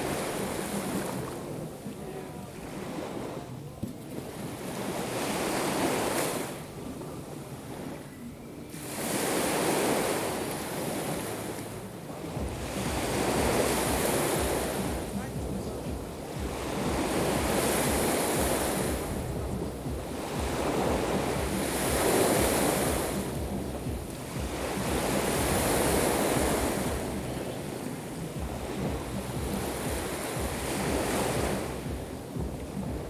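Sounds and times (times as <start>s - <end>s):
waves breaking on shore: 0.0s - 33.0s
wind buffeting microphone: 8.9s - 33.0s.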